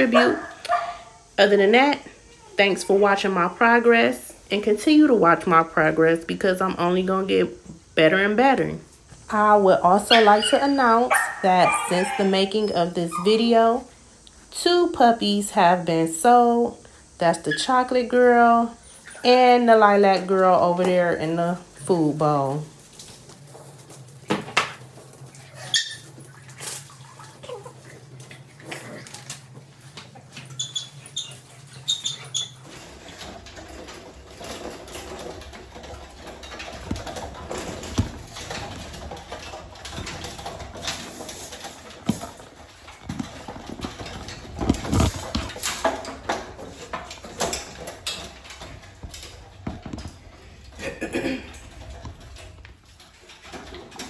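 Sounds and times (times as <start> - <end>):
puppies whining and yipping: 10.0 - 13.6, 25.6 - 26.2
paws scuffling and knocking: 22.8 - 50.6.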